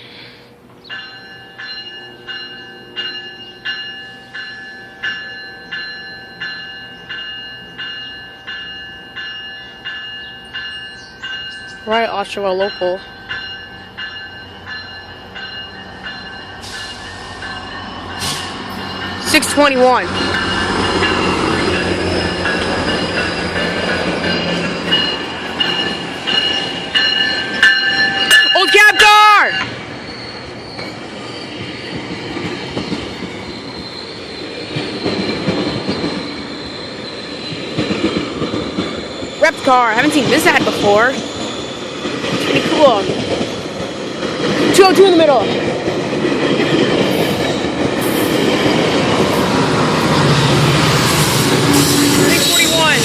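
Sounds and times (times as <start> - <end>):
locomotive bell ringing: 0.8 - 30.8, 39.4 - 41.8, 48.4 - 53.0
train wheels squealing on rails: 12.8 - 53.0.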